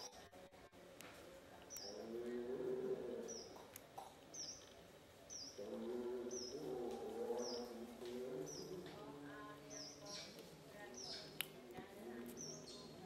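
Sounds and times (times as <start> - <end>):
bird chirping high: 4.3 - 6.7.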